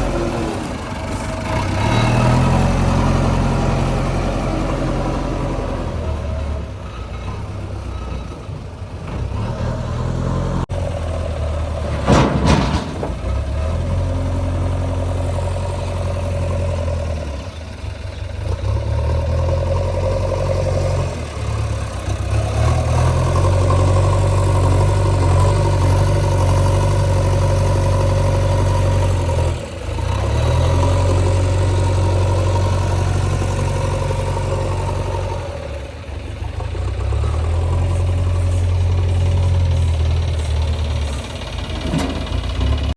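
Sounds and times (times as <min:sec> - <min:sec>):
diesel engine working under load: 0:00.0 - 0:42.9
loud metal clank: 0:11.9 - 0:13.7.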